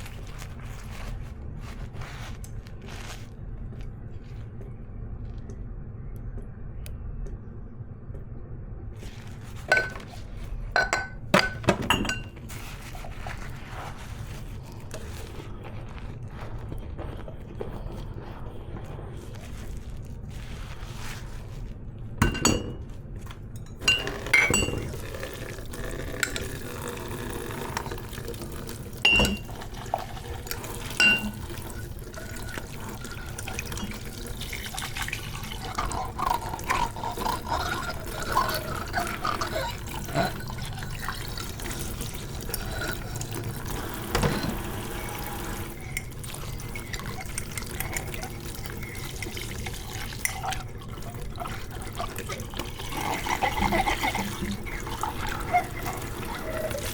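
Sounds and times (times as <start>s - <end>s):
crockery clinking: 9.7s - 10.2s, 10.8s - 12.4s, 22.2s - 23.0s, 23.6s - 25.2s, 29.1s - 29.8s, 31.0s - 31.5s
tap water running into sink: 24.0s - 40.0s, 40.8s - 56.9s.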